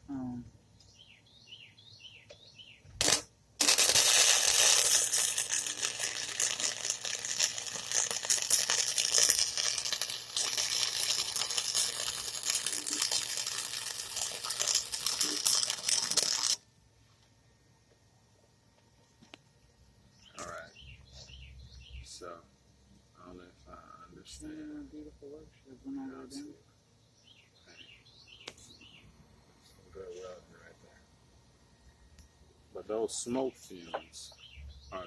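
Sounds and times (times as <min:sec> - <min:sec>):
electric arc welding crackle: 0:03.0 - 0:16.6.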